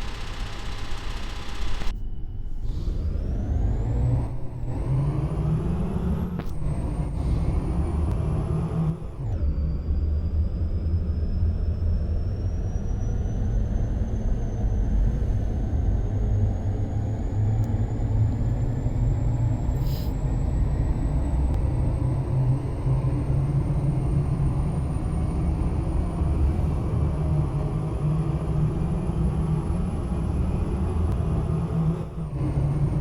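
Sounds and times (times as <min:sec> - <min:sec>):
faint high whine: 0:00.0 - 0:03.4.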